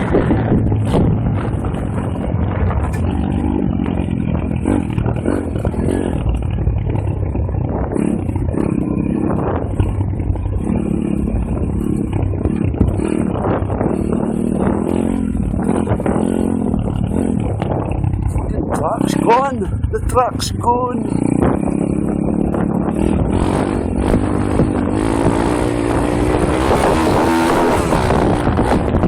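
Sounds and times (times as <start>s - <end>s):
small motorbike engine revving: 21.0s - 29.0s.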